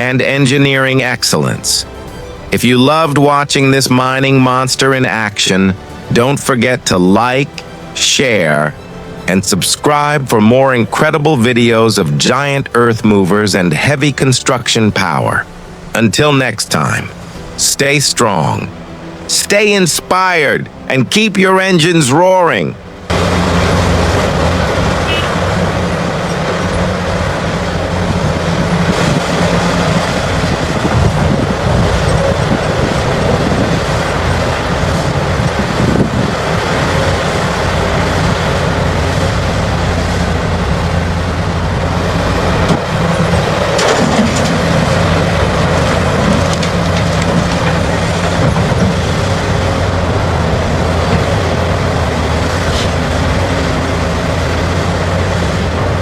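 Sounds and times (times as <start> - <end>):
excavator engine under load: 0.0 - 56.0
hydraulic machinery noise: 14.1 - 56.0.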